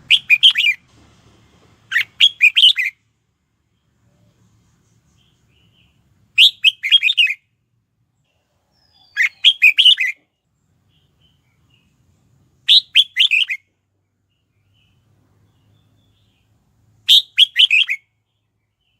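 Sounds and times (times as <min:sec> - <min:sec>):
bird whistled song: 0:00.0 - 0:00.8, 0:01.9 - 0:03.0, 0:05.2 - 0:07.5, 0:08.7 - 0:10.3, 0:12.6 - 0:13.7, 0:14.4 - 0:18.2.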